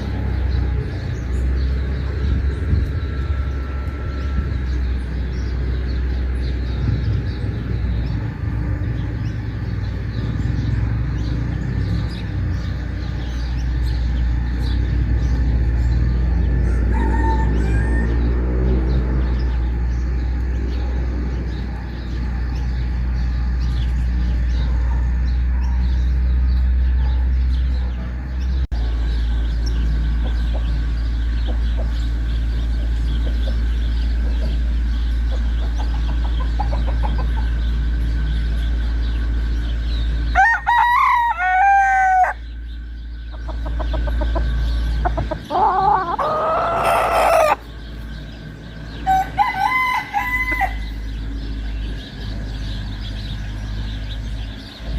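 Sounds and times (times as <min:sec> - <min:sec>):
rooster crowing: 0:16.6 - 0:18.5, 0:40.3 - 0:42.4, 0:45.2 - 0:47.6, 0:49.0 - 0:51.0
chickens clucking: 0:28.8 - 0:40.1, 0:43.2 - 0:51.7.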